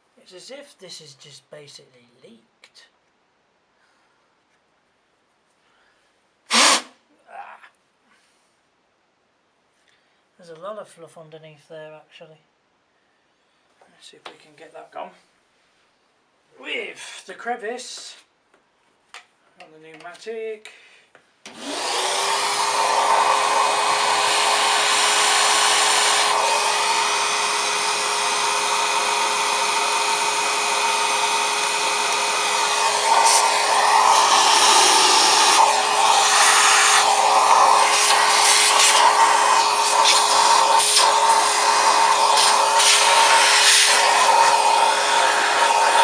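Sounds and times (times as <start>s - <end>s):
vacuum cleaner whining: 6.5s - 6.9s, 21.5s - 46.0s
vacuum nozzle scraping: 6.5s - 6.9s, 21.5s - 46.0s.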